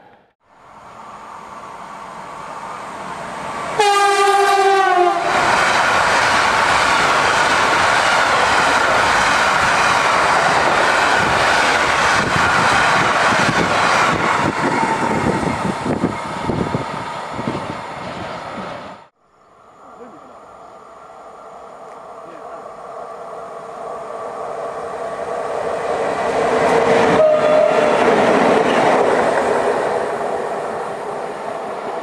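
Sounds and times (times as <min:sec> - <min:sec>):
train wheel and rail noise: 0:00.0 - 0:32.0
locomotive horn blast: 0:03.8 - 0:05.3, 0:27.0 - 0:28.1.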